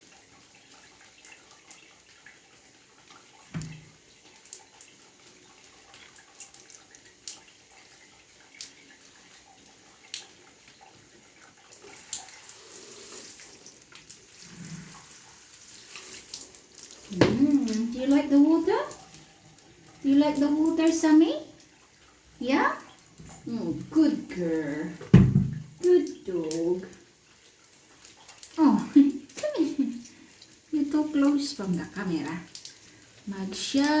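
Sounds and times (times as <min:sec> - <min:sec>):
sharp drips: 0:00.0 - 0:34.0
water running and splashing: 0:00.0 - 0:34.0
dull thump: 0:25.0 - 0:25.7.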